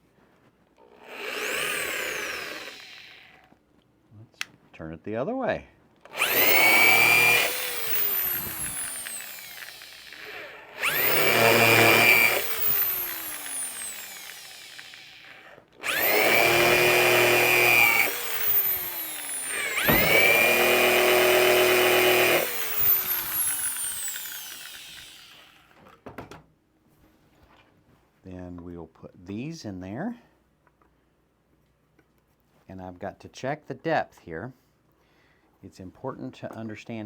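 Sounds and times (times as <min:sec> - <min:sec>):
power drill boring into wood: 0:00.8 - 0:03.5, 0:06.1 - 0:25.9.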